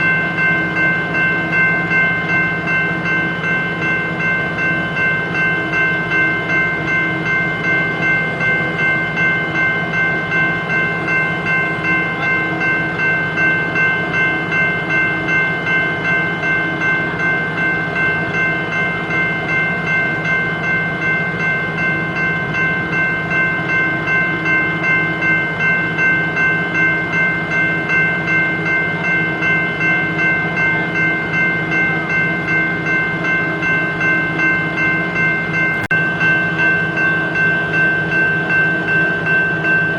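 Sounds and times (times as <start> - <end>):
high ringing tones: 0.0 - 39.9.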